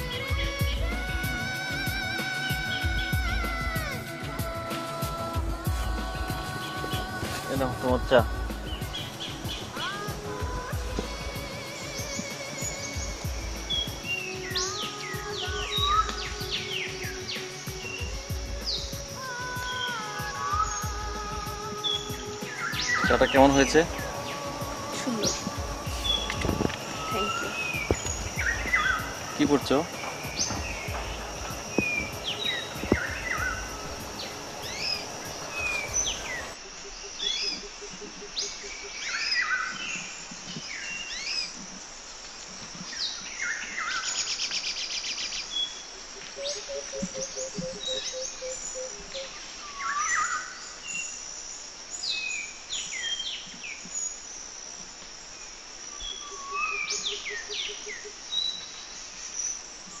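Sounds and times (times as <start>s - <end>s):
birds singing and calling: 0.0s - 54.8s, 55.5s - 60.0s
high insect drone: 0.0s - 60.0s.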